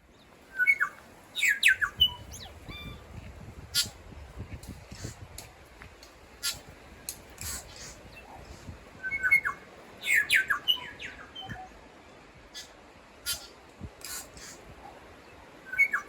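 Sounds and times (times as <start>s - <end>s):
whistled bird notes and glides: 0.0s - 3.1s, 7.4s - 11.8s, 12.5s - 16.0s.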